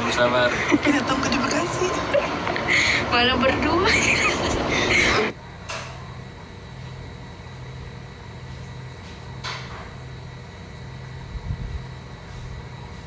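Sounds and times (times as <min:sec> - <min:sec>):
train carriage rumble: 0:00.0 - 0:05.4.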